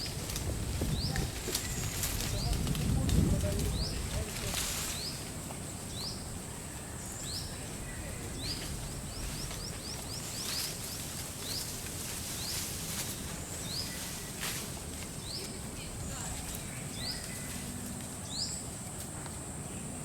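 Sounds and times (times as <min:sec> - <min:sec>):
bird chirping: 0:12.4 - 0:18.7.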